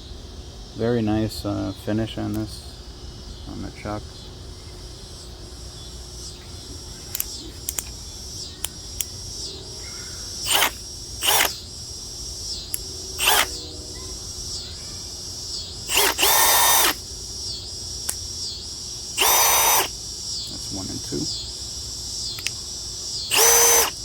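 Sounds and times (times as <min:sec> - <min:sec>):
cordless drill motor whine: 0:04.2 - 0:24.0
light clicks: 0:07.1 - 0:08.0, 0:22.3 - 0:22.6.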